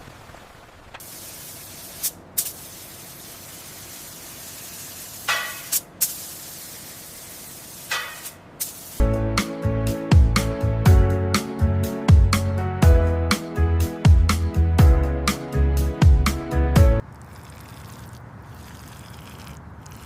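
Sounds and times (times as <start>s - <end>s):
high-pressure spray hissing: 1.0s - 9.0s
music with a strong beat: 9.0s - 17.0s.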